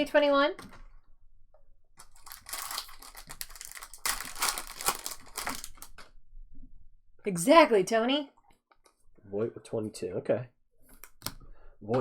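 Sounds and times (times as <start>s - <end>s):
plastic wrapper tearing and crinkling: 2.0s - 6.1s.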